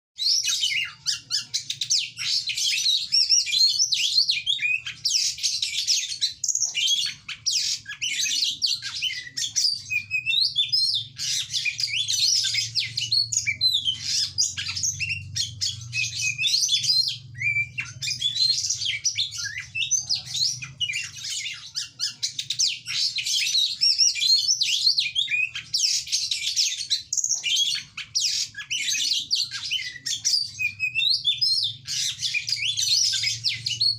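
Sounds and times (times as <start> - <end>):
bird singing whistles and trills: 0.2 - 33.9.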